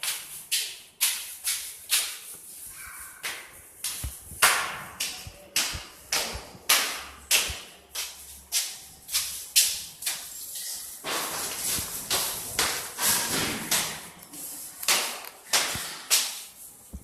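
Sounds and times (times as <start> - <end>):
sharp clacks in a room: 3.2 - 10.3, 11.0 - 14.2, 14.8 - 17.0.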